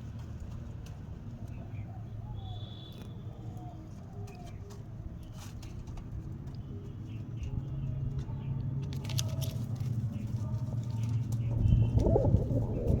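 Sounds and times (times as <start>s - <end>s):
steady low hum: 9.5s - 13.0s
pigeon cooing: 11.0s - 13.0s.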